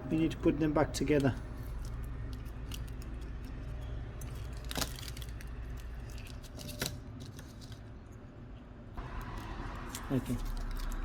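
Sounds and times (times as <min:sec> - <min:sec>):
small metal parts clicking: 0:01.2 - 0:07.7.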